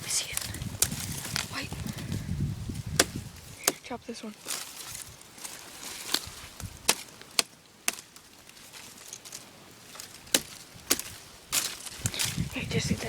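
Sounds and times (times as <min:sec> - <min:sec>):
briars snapping cuts: 0:02.9 - 0:04.6, 0:06.0 - 0:08.3, 0:10.0 - 0:12.4.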